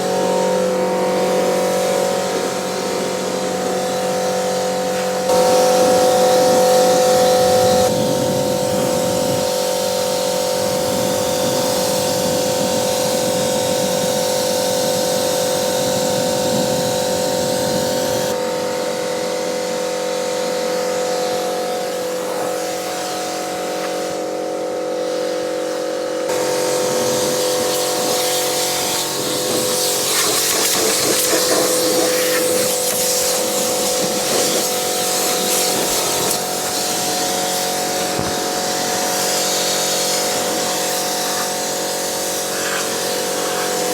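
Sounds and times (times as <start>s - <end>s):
pressure washer whine: 0.0s - 43.9s
water spray hissing: 26.3s - 43.9s.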